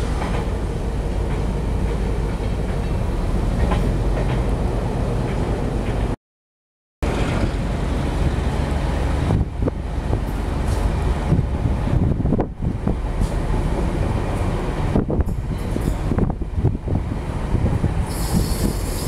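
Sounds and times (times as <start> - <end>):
faint rail clacks: 0.0 - 0.6, 1.2 - 4.6
train wheels rumbling on rails: 0.0 - 6.2, 7.0 - 19.0.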